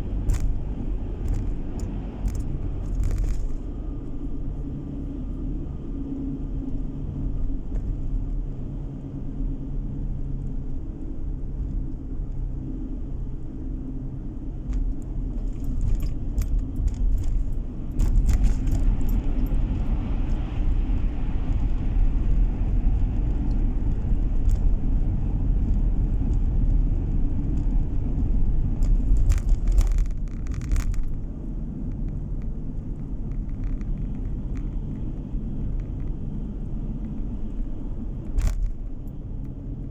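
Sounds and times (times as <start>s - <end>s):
car engine and tyre rumble: 0.0s - 39.9s
light clicking or rattling: 0.2s - 3.8s, 14.6s - 20.8s, 28.8s - 39.6s.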